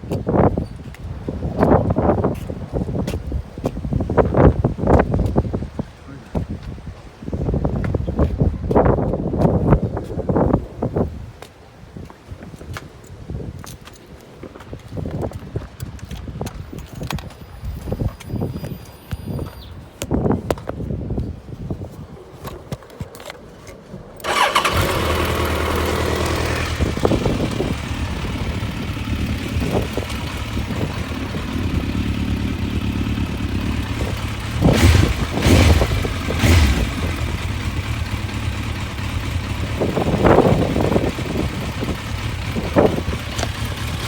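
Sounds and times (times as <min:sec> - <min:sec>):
motorcycle engine idling: 0:24.2 - 0:44.0.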